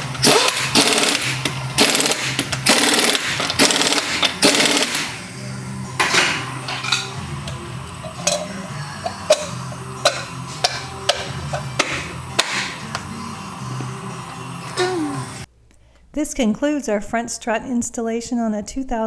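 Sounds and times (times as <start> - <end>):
tools knocking and clinking: 6.0 - 13.1.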